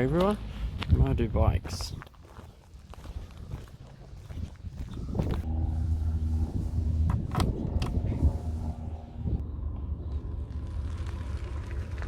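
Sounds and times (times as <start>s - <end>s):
faint light footsteps: 1.9s - 5.4s
low rumble: 4.2s - 12.0s.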